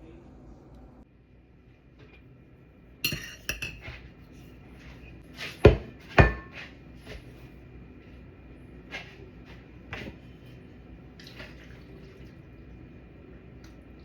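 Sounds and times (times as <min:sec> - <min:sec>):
cutlery clinking on dishes: 0:03.0 - 0:04.0, 0:05.4 - 0:06.7.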